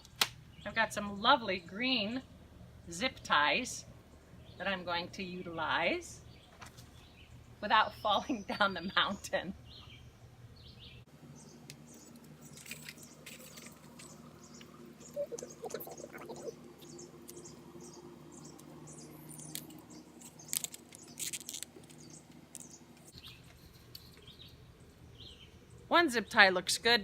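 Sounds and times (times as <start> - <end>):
faint low hum: 0.4 - 27.0
small birds chirping: 6.2 - 26.4.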